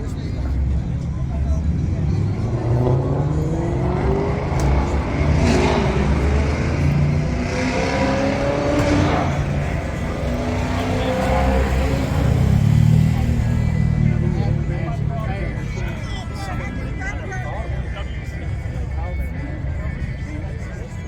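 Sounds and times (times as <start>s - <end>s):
car engine revving: 0.4s - 16.5s.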